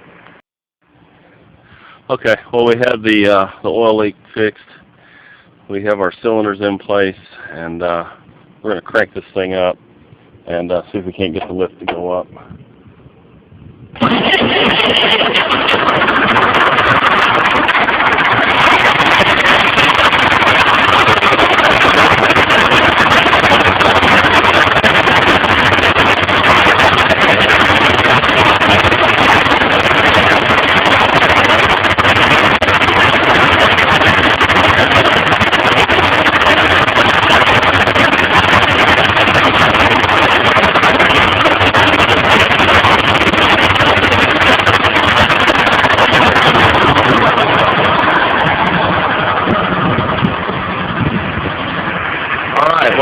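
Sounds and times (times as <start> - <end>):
tractor engine running: 13.9 - 53.0.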